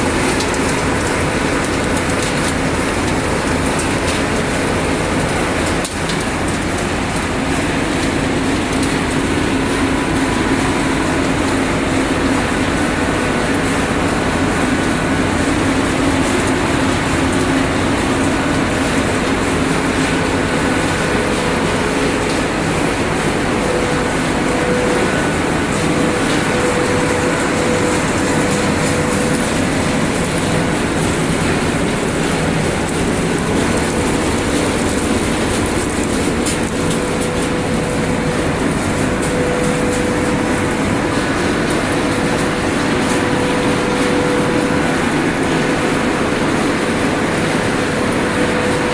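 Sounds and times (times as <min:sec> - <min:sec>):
recycling machinery din: 0:00.0 - 0:48.9.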